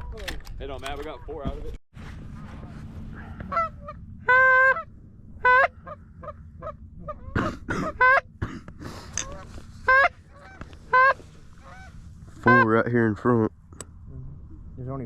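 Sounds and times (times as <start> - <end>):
goose honking: 3.3 - 8.4, 9.2 - 12.9
goose clucking: 3.3 - 12.8.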